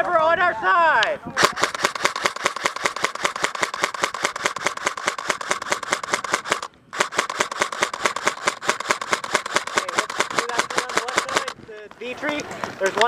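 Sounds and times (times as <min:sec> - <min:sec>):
airsoft rifle firing full-auto: 0:01.4 - 0:11.6.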